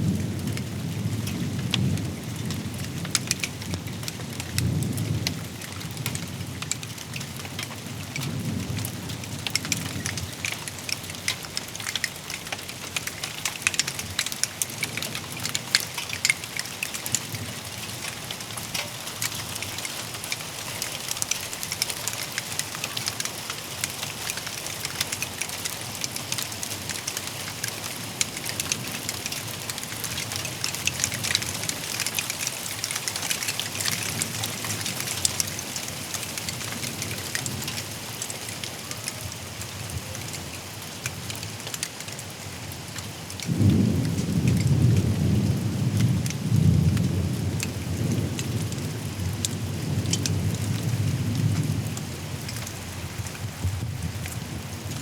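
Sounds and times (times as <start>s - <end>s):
heavy rain: 0.0s - 55.0s
raindrops ticking on surfaces: 0.0s - 55.0s
low thunder rumble: 43.5s - 55.0s.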